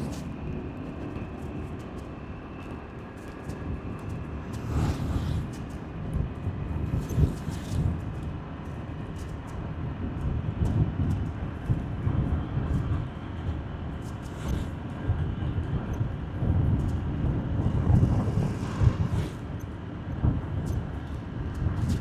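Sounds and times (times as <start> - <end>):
wind: 0.0 - 22.0
tyres on road: 17.0 - 21.6.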